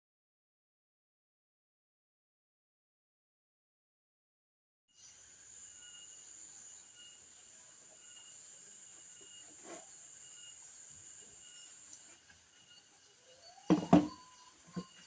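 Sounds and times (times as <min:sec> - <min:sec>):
insect chirping: 0:05.0 - 0:15.0
insects droning: 0:05.0 - 0:15.0
soft knock: 0:13.7 - 0:14.2.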